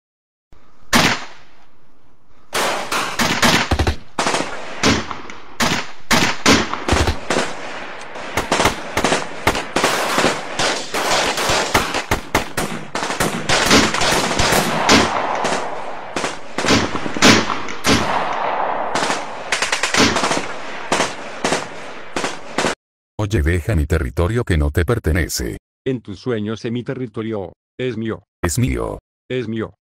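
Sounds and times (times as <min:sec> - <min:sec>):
rapid rifle and machine-gun fire: 0:02.6 - 0:22.8.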